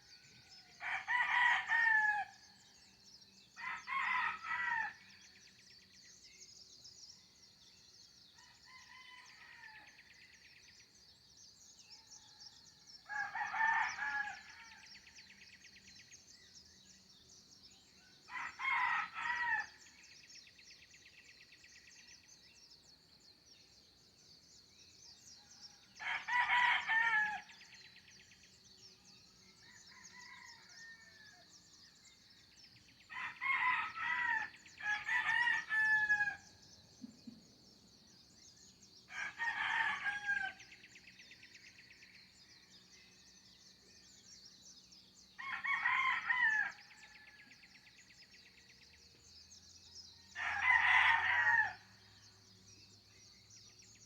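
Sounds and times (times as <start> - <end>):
roosters crowing: 0.8 - 2.4, 18.3 - 19.7, 26.0 - 27.5, 33.1 - 36.4, 39.1 - 40.6, 45.4 - 47.1, 50.4 - 51.9.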